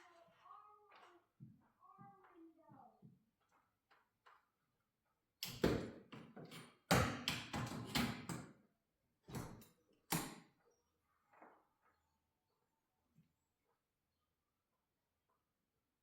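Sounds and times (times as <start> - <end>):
garage door hardware knocks and rattles: 5.4 - 8.5.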